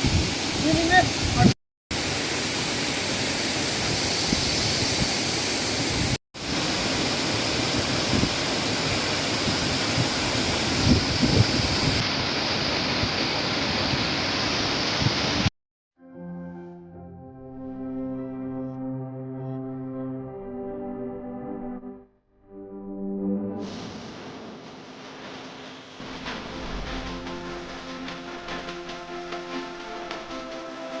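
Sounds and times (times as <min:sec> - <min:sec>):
waterfall rushing water: 0:00.0 - 0:15.5.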